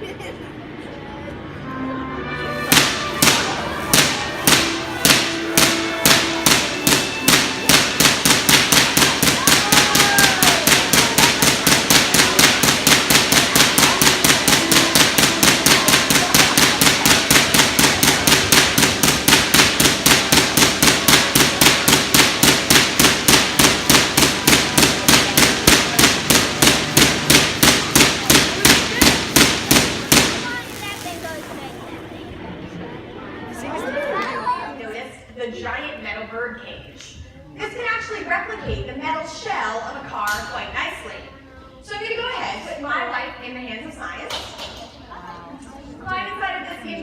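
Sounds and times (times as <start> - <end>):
tesla coil sparks cracking: 2.7 - 31.9.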